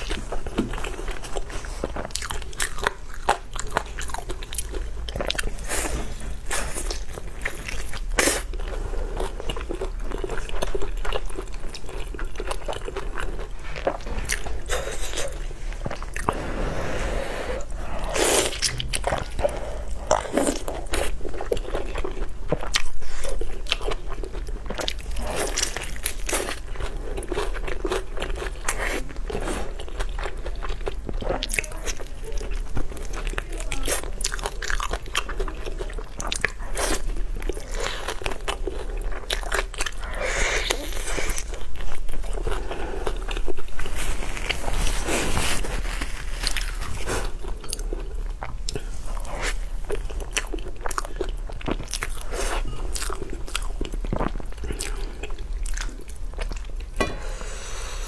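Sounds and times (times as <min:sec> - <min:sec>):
person biting and chewing: 0:17.6 - 0:30.4.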